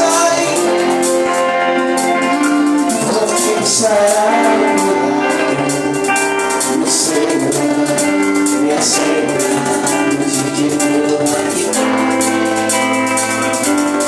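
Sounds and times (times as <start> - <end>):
worship band playing: 0.0 - 14.0.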